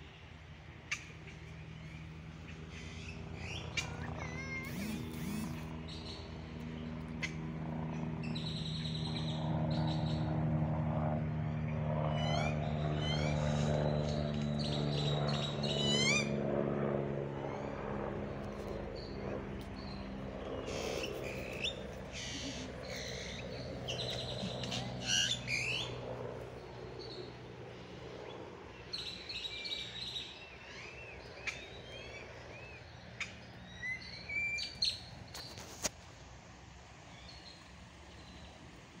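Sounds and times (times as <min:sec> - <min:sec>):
birds chirping: 0:00.0 - 0:10.3, 0:11.4 - 0:16.5, 0:17.3 - 0:35.7.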